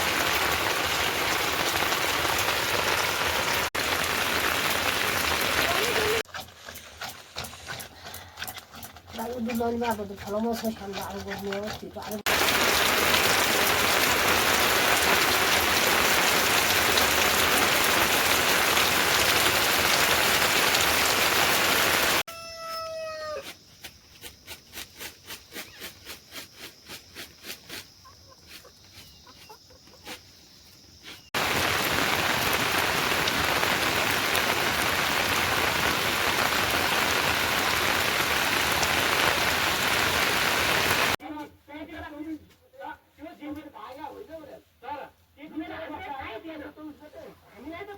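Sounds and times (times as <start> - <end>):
heavy rain pouring: 0.0 - 6.3, 12.2 - 22.3, 31.4 - 41.2
rooster crowing: 22.3 - 23.5.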